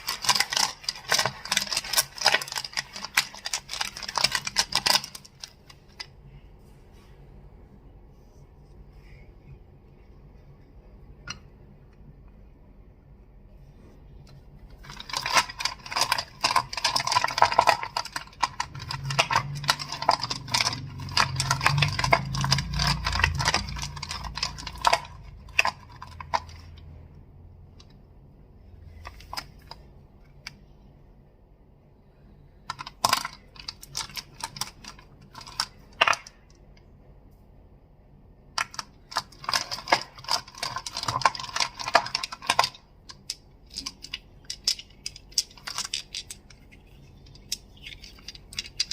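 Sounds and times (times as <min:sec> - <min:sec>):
crystals clicking together: 0:15.0 - 0:26.8.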